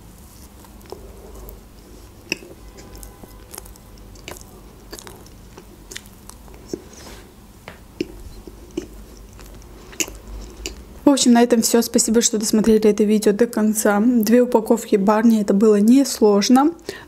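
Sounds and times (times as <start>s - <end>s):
chewing soft cake: 0.1s - 7.4s, 8.0s - 10.9s
sharp mouth clicks: 2.2s - 7.0s, 8.0s - 10.9s.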